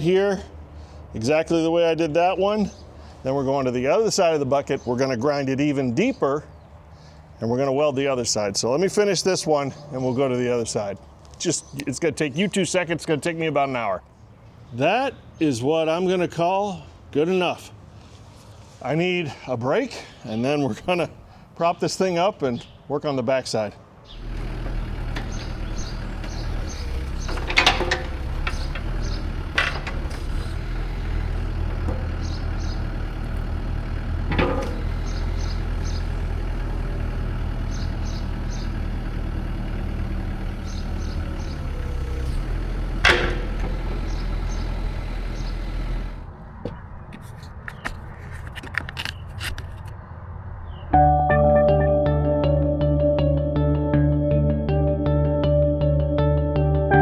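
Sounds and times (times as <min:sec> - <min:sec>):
engine idling: 0:24.1 - 0:46.4
sharp metallic clanks: 0:24.2 - 0:33.6, 0:34.2 - 0:36.0, 0:40.7 - 0:46.2.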